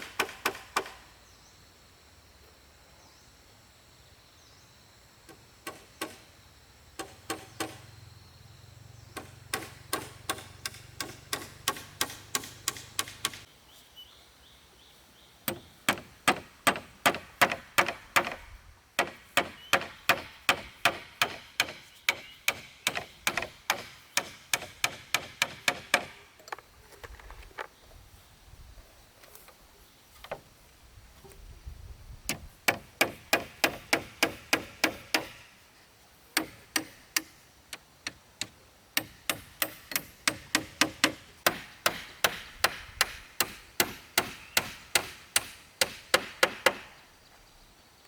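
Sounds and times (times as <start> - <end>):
hammer driving nails into wood: 0.0 - 1.0, 9.2 - 13.5, 19.0 - 26.2, 32.7 - 35.4, 36.4 - 37.4, 38.4 - 47.0.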